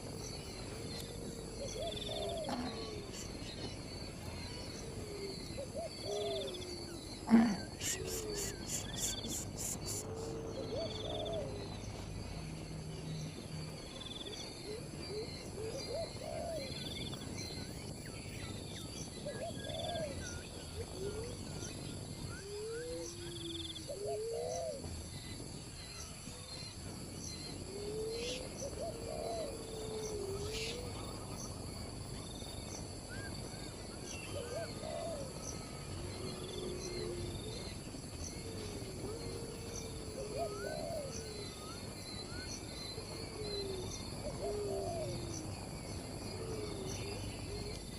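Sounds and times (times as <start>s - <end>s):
low hooting calls: 0.0s - 16.8s
insect chorus: 0.0s - 47.9s.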